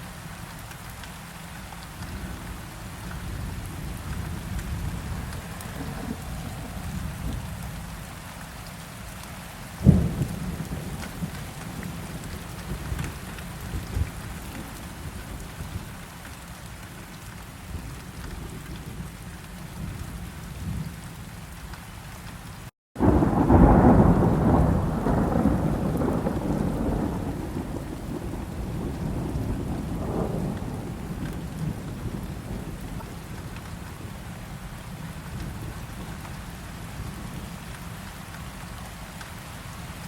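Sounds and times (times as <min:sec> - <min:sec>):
heavy rain: 0:00.0 - 0:40.0
long rumble of thunder: 0:02.0 - 0:08.1, 0:09.8 - 0:16.0, 0:23.0 - 0:36.3
thunderclap: 0:04.5 - 0:07.6, 0:23.0 - 0:33.6.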